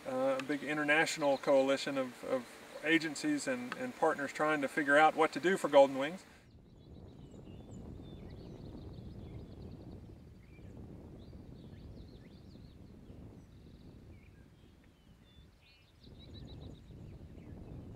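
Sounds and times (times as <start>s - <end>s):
birds calling: 0.0s - 17.9s.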